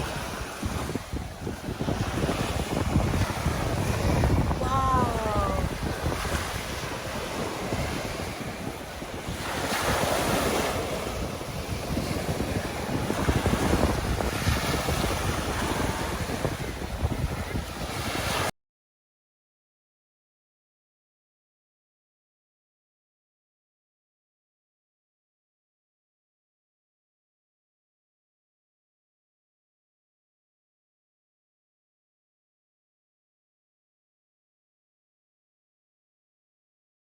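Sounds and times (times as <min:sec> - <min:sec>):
surf breaking and washing: 0:00.0 - 0:18.5
wind noise on microphone: 0:00.0 - 0:18.5.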